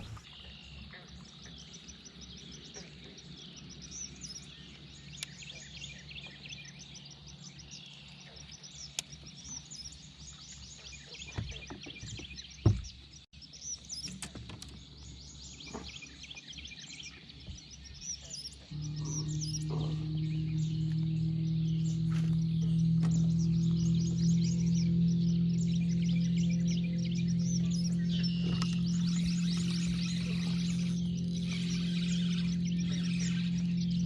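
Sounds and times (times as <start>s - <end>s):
birds chirping: 0.0s - 34.0s
faint low hum: 18.6s - 34.0s.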